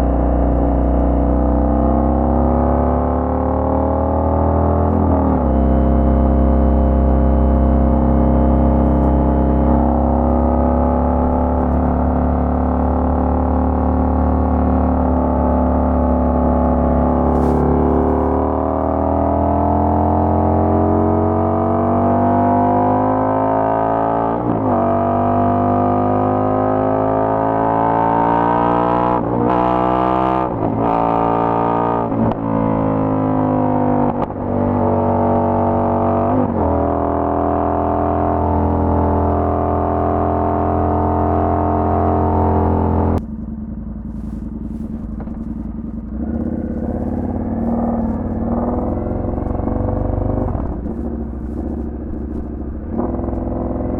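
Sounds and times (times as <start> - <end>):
motorcycle engine: 0.0 - 28.0, 29.9 - 53.9
gear changes: 43.0 - 53.9.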